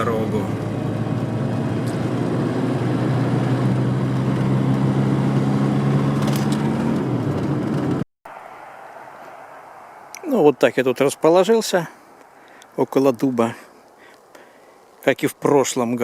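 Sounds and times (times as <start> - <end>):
low engine hum: 0.0 - 10.9
road noise inside car: 0.0 - 11.2.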